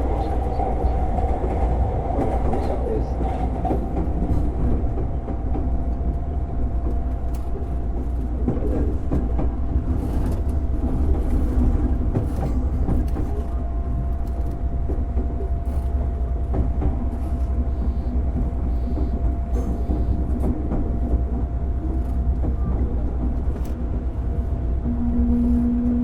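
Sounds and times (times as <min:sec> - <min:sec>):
train motors and wheels rumbling: 0:00.0 - 0:26.0
steady humming tone: 0:24.6 - 0:26.0.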